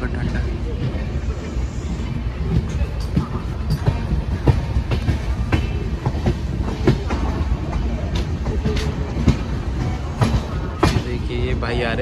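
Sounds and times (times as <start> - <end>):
train rumbling on rails: 0.0 - 12.0
wheels clacking over rail joints: 2.5 - 12.0.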